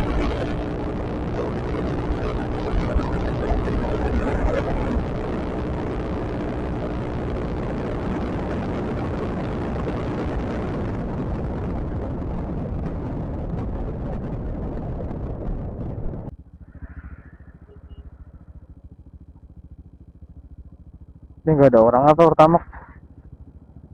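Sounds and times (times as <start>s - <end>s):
wind rushing: 0.0s - 16.3s
scooter road noise: 0.0s - 23.9s.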